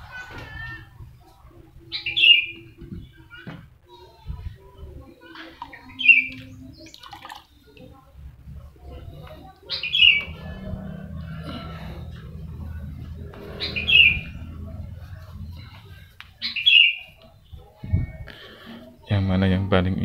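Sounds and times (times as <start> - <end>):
low steady rumble: 8.2 - 16.4.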